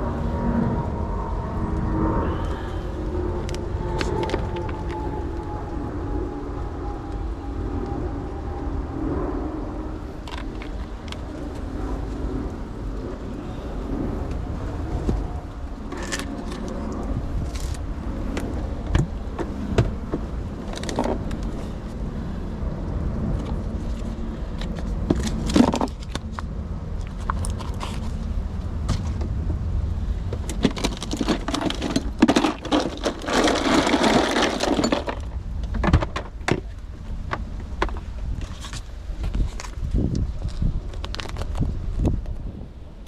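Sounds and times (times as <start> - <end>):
steady low rumble: 0.0 - 43.0
rustling noise: 30.4 - 35.4.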